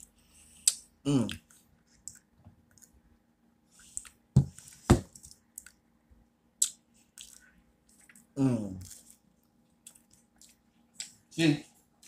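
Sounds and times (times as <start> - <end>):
person chewing: 0.0 - 3.0, 3.8 - 4.7, 5.3 - 5.8, 6.6 - 11.2.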